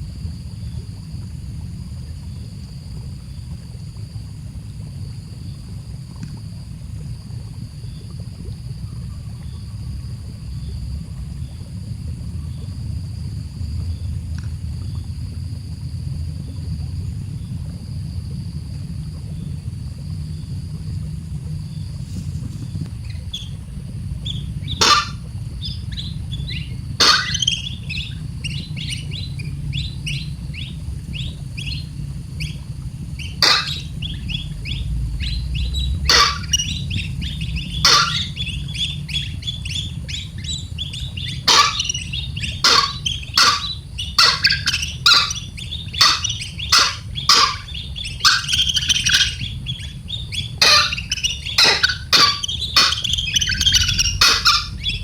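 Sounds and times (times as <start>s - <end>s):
steady low hum: 0.0s - 55.0s
sharp bird calls: 24.3s - 31.8s, 33.2s - 55.0s
baby bird chirping: 24.8s - 25.2s, 33.4s - 33.9s, 36.1s - 36.8s, 37.8s - 38.4s, 41.5s - 49.9s, 50.6s - 55.0s.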